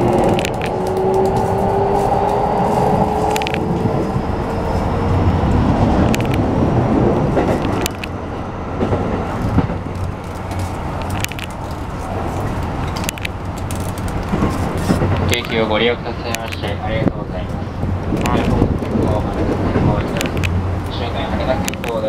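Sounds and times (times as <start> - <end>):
train wheels rumbling on rail: 0.0 - 22.0
sharp clicks: 6.0 - 6.4, 7.6 - 8.2, 12.9 - 15.6, 20.1 - 20.6, 21.6 - 22.0.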